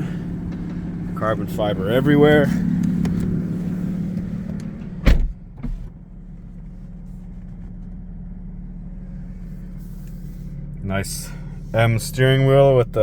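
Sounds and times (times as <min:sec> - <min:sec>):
car engine idling: 0:00.0 - 0:13.0
car door thudding shut: 0:04.2 - 0:06.0.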